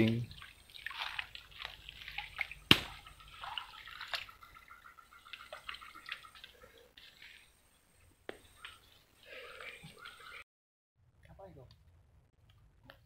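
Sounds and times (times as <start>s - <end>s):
water dripping and splashing: 0.0s - 7.4s.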